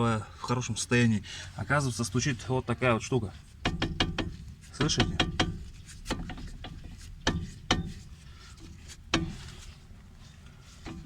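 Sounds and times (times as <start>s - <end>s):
brake caliper knocking: 3.6s - 9.5s.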